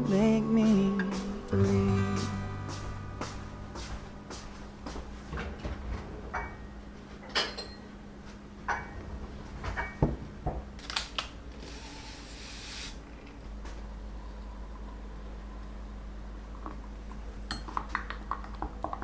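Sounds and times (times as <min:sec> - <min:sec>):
dishes and utensils clinking: 0:06.3 - 0:07.9.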